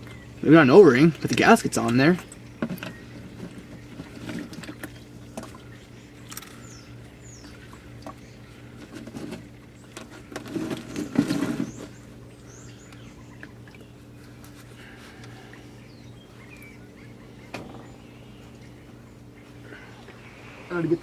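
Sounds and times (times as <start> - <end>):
small birds chirping faintly: 0.0 - 21.0
steady low hum: 0.0 - 21.0.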